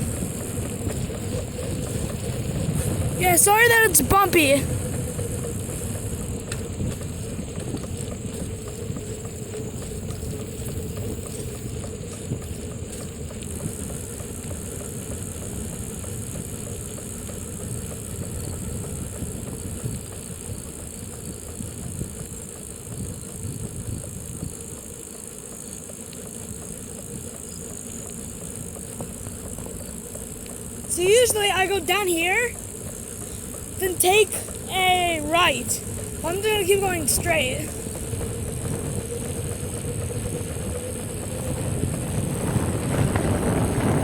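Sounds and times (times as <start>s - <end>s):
wind on microphone: 0.0s - 13.9s, 18.1s - 24.8s, 35.8s - 44.0s
bicycle rattling over bumps: 0.0s - 44.0s.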